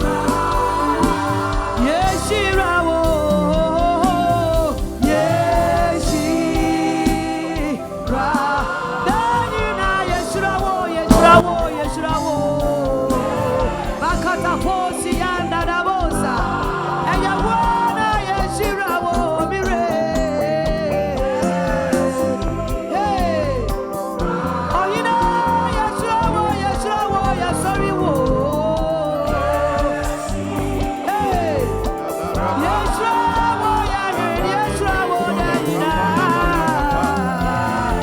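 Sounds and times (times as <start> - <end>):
gospel worship song: 0.0 - 38.0.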